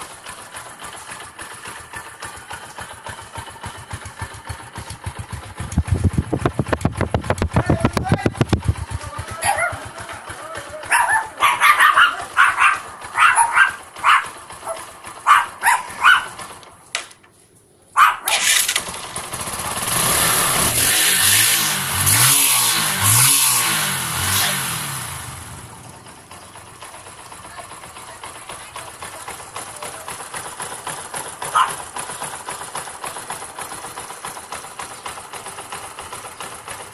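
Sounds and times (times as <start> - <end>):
motorcycle engine idling and revving: 0.0 - 17.0, 18.2 - 36.9
dog barking: 9.4 - 9.9, 10.8 - 16.4, 18.0 - 18.4, 31.4 - 31.8.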